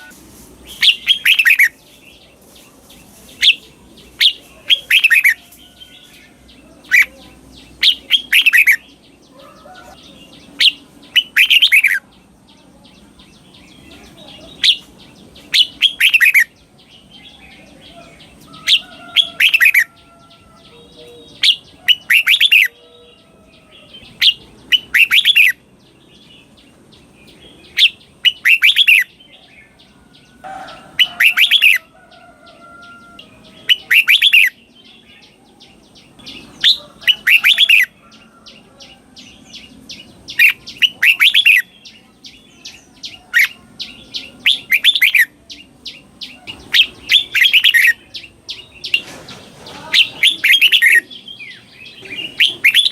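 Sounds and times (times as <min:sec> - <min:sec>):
bird whistled song: 0:00.0 - 0:02.1, 0:03.4 - 0:12.0, 0:14.6 - 0:20.1, 0:20.7 - 0:22.8, 0:24.1 - 0:25.6, 0:27.7 - 0:29.2, 0:31.0 - 0:31.9, 0:33.6 - 0:34.8, 0:36.1 - 0:38.4, 0:39.6 - 0:49.1, 0:50.0 - 0:52.9.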